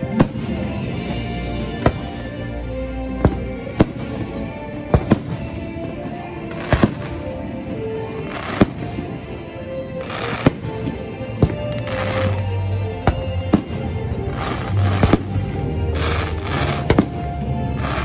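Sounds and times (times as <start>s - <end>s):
fireworks crackling: 0.0s - 18.0s
music: 0.0s - 18.0s
fireworks bangs: 3.2s - 4.4s, 5.0s - 7.3s, 8.2s - 9.2s, 10.0s - 18.0s.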